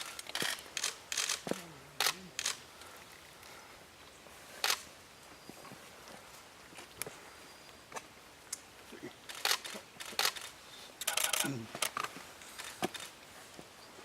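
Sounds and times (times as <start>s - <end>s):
camera shutters clicking: 0.0s - 2.6s, 9.3s - 13.1s.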